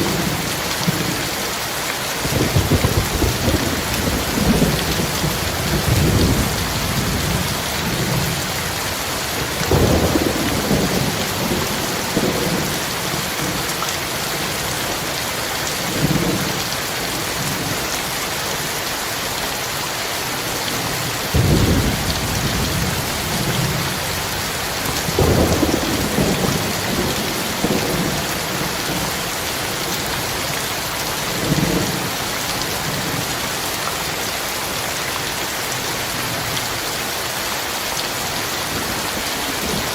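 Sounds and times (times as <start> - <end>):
heavy rain: 0.0 - 39.9
thunder rumbling: 2.2 - 13.6, 21.4 - 29.1.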